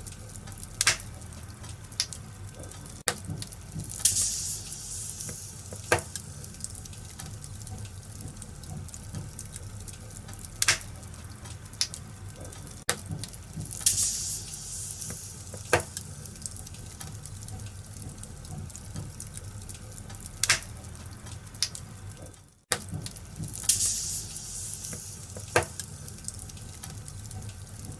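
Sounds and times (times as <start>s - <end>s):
fire popping: 0.0s - 27.9s
wood fire crackling: 0.0s - 27.9s
fire hissing flare: 3.8s - 7.6s, 13.5s - 17.4s, 23.5s - 26.8s.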